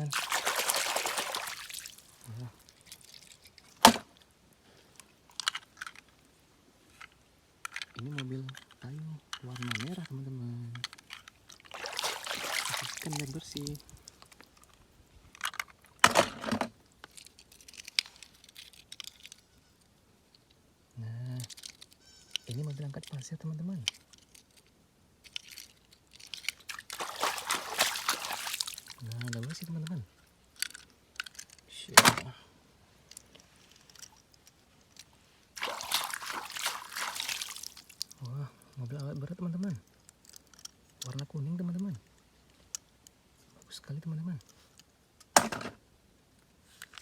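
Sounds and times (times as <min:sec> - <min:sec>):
scrubbing rustle: 0:00.0 - 0:03.9, 0:11.5 - 0:14.4, 0:26.2 - 0:29.6, 0:35.2 - 0:38.2
water splashing and trickling: 0:00.0 - 0:04.2, 0:11.1 - 0:14.7, 0:25.4 - 0:30.0, 0:33.7 - 0:38.4
small plastic clicks: 0:07.0 - 0:10.1, 0:21.4 - 0:22.5, 0:30.6 - 0:32.2, 0:40.0 - 0:41.2
brushing rustles: 0:33.3 - 0:38.0.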